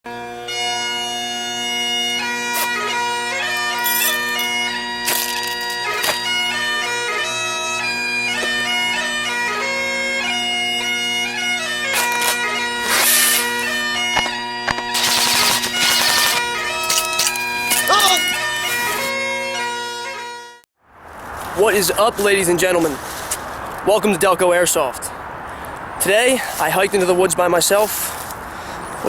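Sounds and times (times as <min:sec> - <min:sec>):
bagpipe music: 0:00.1 - 0:20.7.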